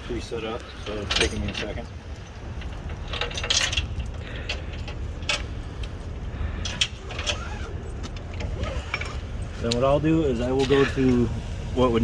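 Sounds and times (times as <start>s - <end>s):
steady low rumble: 0.0s - 12.0s
metal buckles clinking and rattling: 0.8s - 9.9s.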